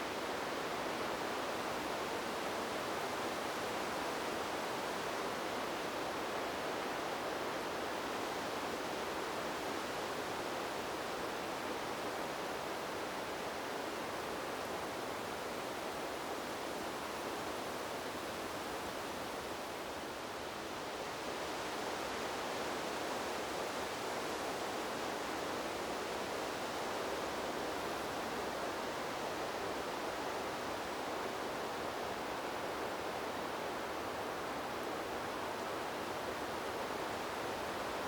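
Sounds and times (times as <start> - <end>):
wind blowing through trees: 0.0 - 38.0.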